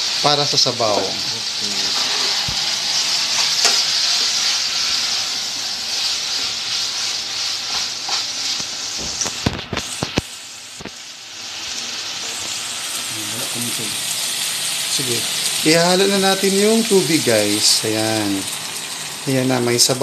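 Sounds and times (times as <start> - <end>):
food sizzling in a pot: 0.0 - 20.0.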